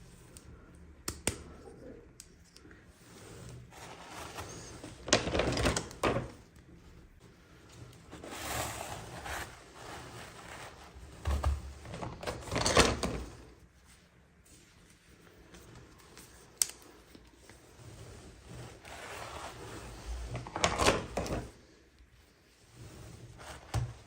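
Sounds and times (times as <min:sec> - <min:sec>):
plastic packaging rustling: 0:03.7 - 0:06.4.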